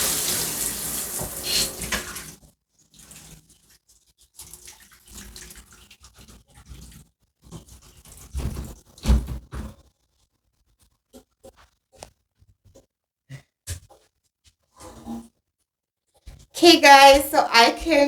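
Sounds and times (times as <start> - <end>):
shower spray hissing: 0.0 - 2.3.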